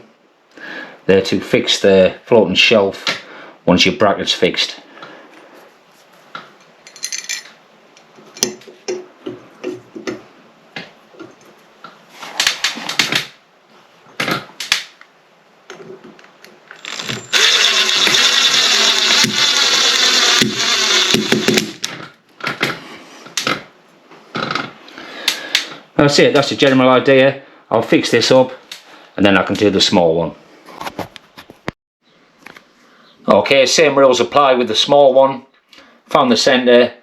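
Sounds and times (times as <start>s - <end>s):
power drill drilling: 16.7s - 21.9s.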